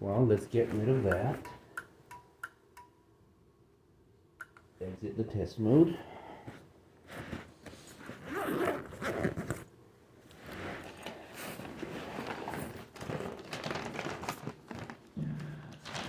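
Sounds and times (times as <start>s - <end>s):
rasping rustling handling noise: 6.5s - 16.0s.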